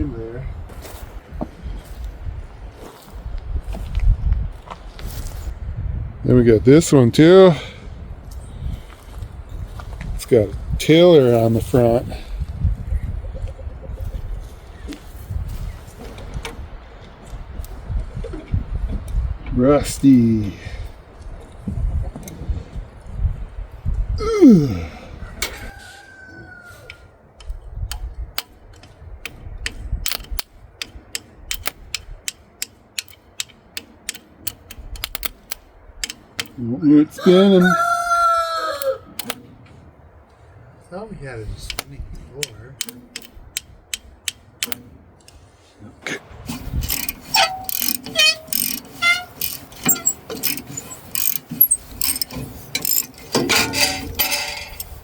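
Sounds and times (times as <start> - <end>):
sharp metallic clicks of mechanism: 26.9 - 36.6, 38.8 - 39.5, 41.6 - 45.4, 46.5 - 55.0
short metallic squeaks: 46.5 - 55.0.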